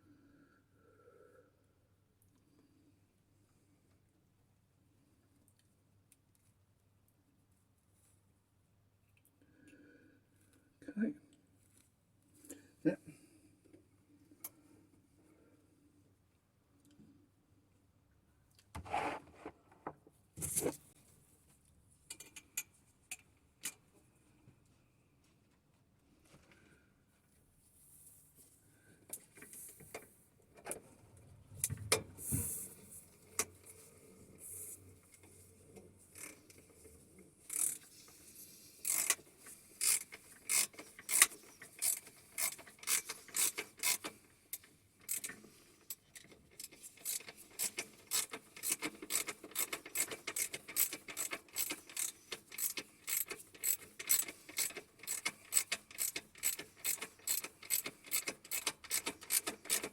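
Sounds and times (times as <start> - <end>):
ratchet spanner clicking: 36.2 - 36.4, 37.5 - 37.9, 38.8 - 39.2, 39.8 - 59.9
hand tools clicking and knocking: 38.9 - 39.2, 39.8 - 45.4, 46.2 - 59.9.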